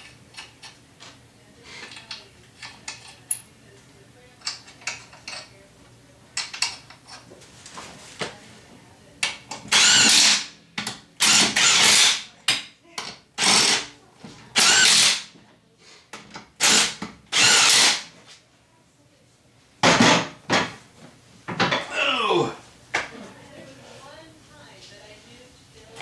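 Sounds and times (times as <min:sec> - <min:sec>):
power drill whining: 0:09.7 - 0:10.4, 0:14.6 - 0:15.2, 0:16.6 - 0:18.0.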